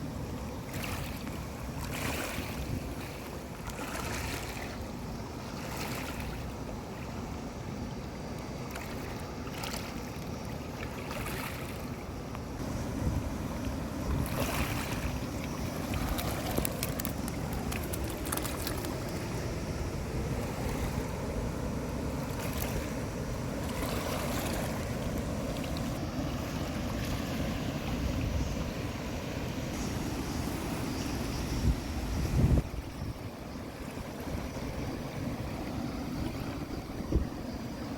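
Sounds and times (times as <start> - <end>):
stream water rushing: 0.0 - 37.9
wind buffeting microphone: 12.6 - 29.1, 29.7 - 37.9.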